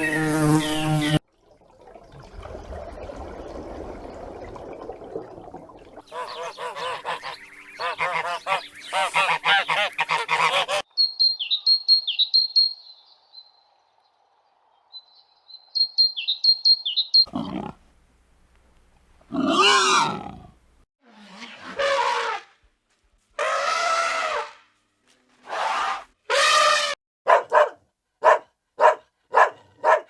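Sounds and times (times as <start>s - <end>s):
bird honking calls: 6.0s - 10.8s
high thin bird chirps: 6.1s - 13.6s, 15.0s - 17.3s.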